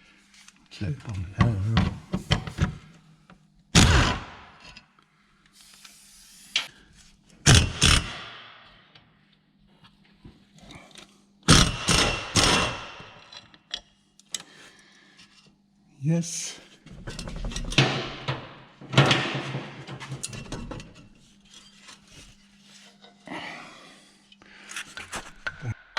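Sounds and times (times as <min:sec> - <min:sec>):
metal clanks and scrapes: 0:16.9 - 0:23.3.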